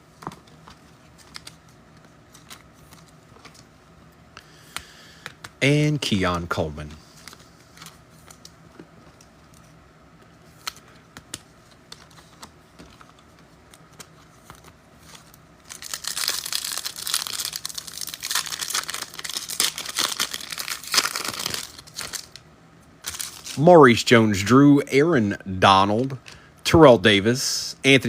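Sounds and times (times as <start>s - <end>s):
foil wrapper crinkling and tearing: 14.6s - 22.4s, 23.0s - 23.6s.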